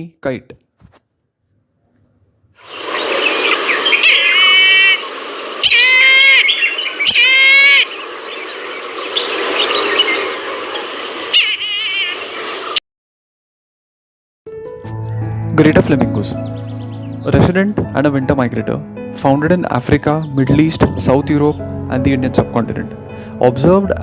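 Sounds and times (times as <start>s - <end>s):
bird of prey calling: 2.6s - 12.8s
steady background hiss: 2.6s - 12.8s.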